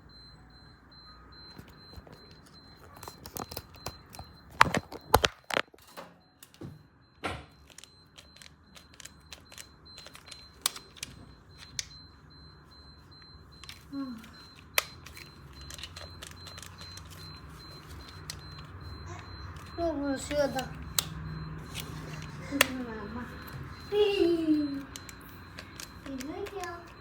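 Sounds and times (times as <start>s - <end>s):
small objects clicking and knocking: 7.6s - 11.9s, 14.5s - 17.3s, 24.8s - 27.0s.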